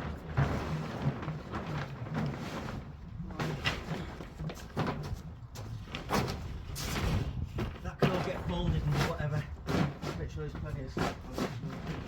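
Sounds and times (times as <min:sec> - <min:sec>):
scraping on concrete: 0:00.0 - 0:12.0.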